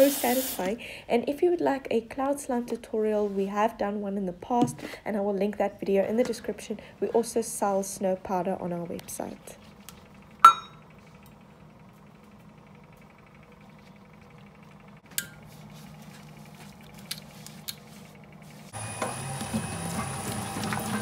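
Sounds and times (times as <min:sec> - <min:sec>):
hard object clinking: 0:10.4 - 0:10.8.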